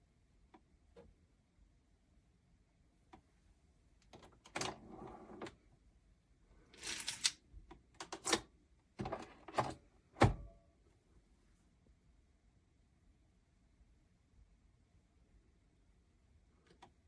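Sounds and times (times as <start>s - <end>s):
short scrapes and rattles: 6.8s - 7.4s.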